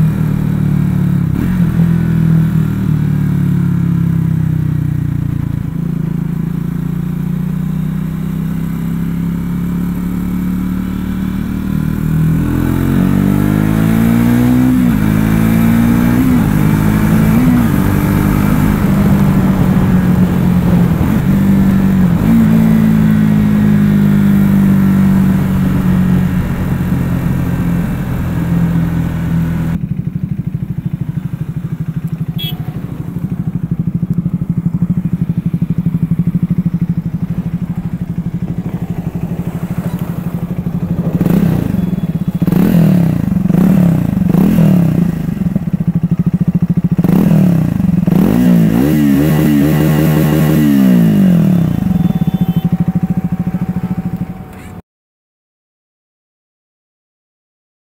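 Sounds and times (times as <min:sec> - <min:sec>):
motorcycle engine accelerating: 0:00.0 - 0:54.8
engine idling: 0:29.7 - 0:42.5, 0:51.6 - 0:54.8.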